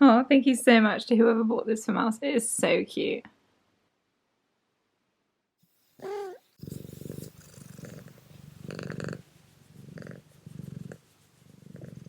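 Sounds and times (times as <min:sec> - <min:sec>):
cat meowing: 0:06.0 - 0:06.4
cat purring: 0:06.0 - 0:12.0.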